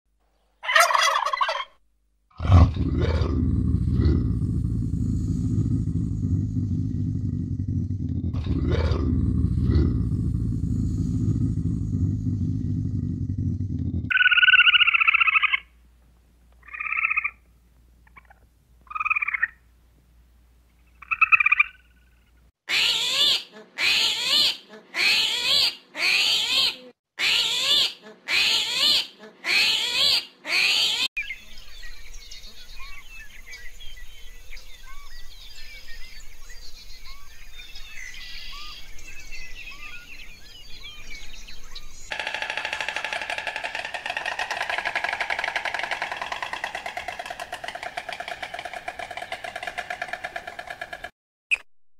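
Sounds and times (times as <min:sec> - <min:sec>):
lynx low rumbling growl: 0:02.4 - 0:14.1, 0:42.1 - 0:51.1
squirrel chirping calls: 0:14.1 - 0:15.6
squirrel harsh calls: 0:22.7 - 0:31.1, 0:42.1 - 0:51.0.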